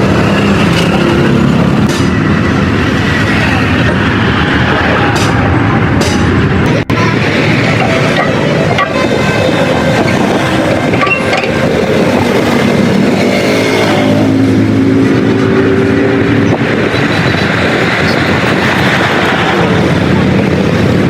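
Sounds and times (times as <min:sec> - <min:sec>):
vehicle engine running loudly: 0:00.0 - 0:21.0
held tones: 0:07.5 - 0:12.1.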